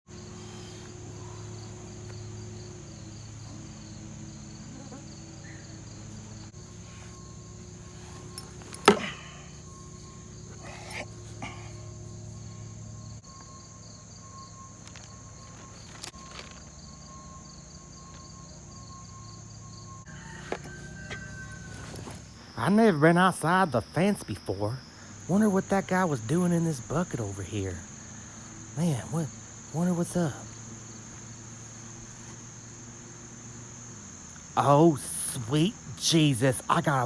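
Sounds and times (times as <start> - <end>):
insects chirping: 0.1 - 37.0.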